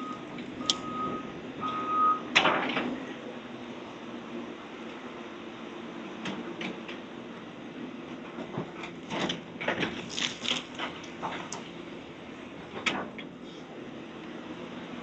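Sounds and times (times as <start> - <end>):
heavy machinery engine running: 0.0 - 10.0.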